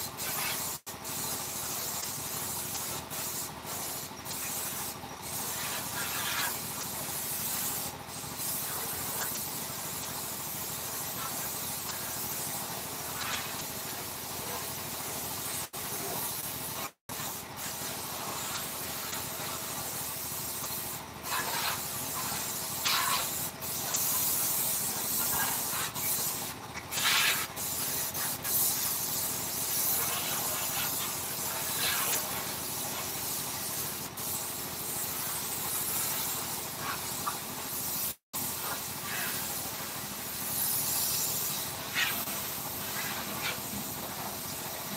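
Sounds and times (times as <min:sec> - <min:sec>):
hissing spray of air: 0:00.0 - 0:44.9.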